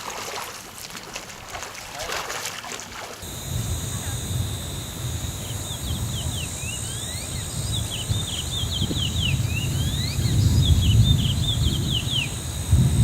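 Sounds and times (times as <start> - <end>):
small birds chirping: 3.2 - 12.8.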